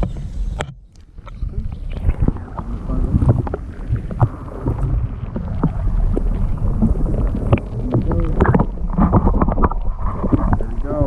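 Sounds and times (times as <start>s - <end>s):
wind buffeting microphone: 1.3s - 11.0s.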